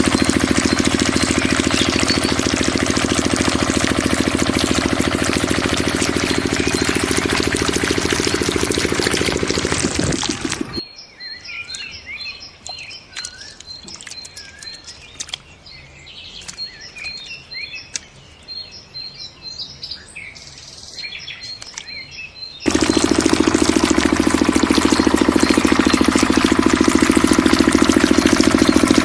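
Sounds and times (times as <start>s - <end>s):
water pump engine running: 0.0s - 10.8s, 22.7s - 29.0s
birds chirping: 0.0s - 29.0s
scattered clicks: 12.6s - 15.5s, 16.4s - 18.2s, 21.5s - 22.0s.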